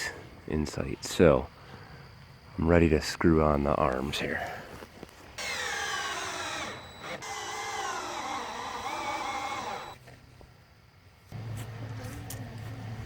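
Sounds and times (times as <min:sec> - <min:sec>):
power drill driving screws: 0:05.4 - 0:10.0.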